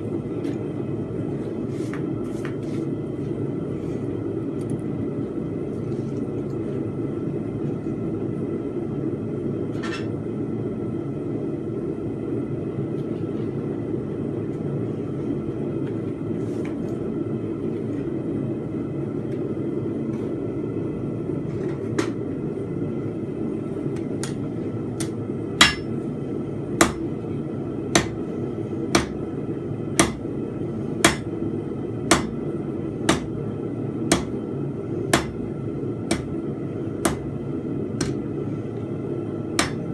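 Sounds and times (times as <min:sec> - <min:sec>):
hammer striking steel on anvil: 0:25.0 - 0:25.9, 0:26.8 - 0:27.0, 0:28.0 - 0:28.2, 0:29.0 - 0:29.2, 0:30.0 - 0:30.2, 0:31.0 - 0:31.3, 0:32.1 - 0:32.3, 0:34.1 - 0:34.4, 0:35.1 - 0:35.4, 0:36.1 - 0:36.3, 0:37.0 - 0:37.2, 0:39.6 - 0:39.9.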